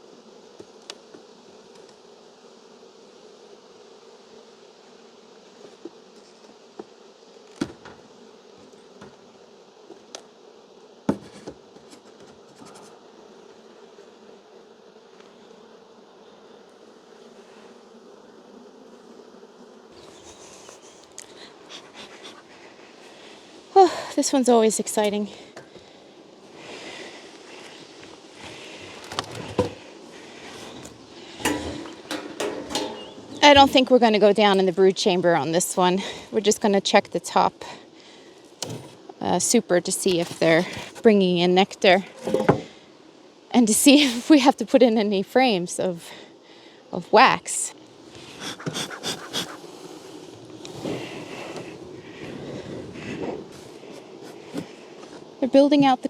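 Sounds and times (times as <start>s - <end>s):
bees buzzing: 0.0s - 36.8s, 37.4s - 44.4s, 46.5s - 56.0s
sharp knocks: 31.4s - 33.9s.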